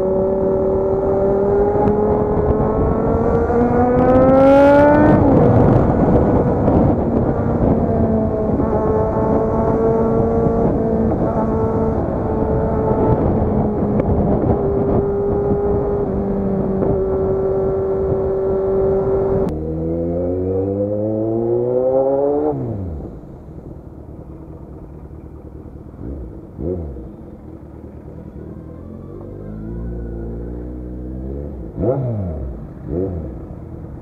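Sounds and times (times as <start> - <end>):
wind rush: 0.0 - 19.6
motorcycle engine revving: 0.0 - 34.0.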